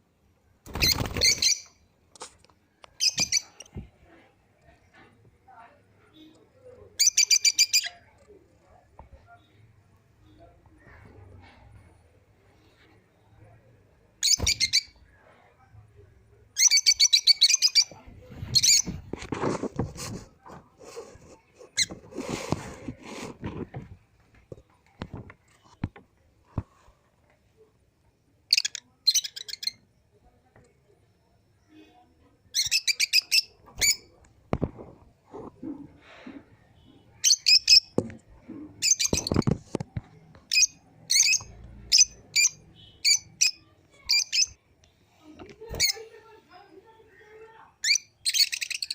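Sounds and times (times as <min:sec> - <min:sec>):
lovebirds chirping: 0:00.7 - 0:01.8, 0:02.9 - 0:03.8, 0:06.2 - 0:08.1, 0:14.2 - 0:15.1, 0:16.6 - 0:19.0, 0:28.5 - 0:29.8, 0:32.6 - 0:34.1, 0:36.8 - 0:38.0, 0:38.8 - 0:39.5, 0:40.5 - 0:45.0, 0:45.7 - 0:48.9
rustling and knocking: 0:18.1 - 0:26.8, 0:34.5 - 0:36.4.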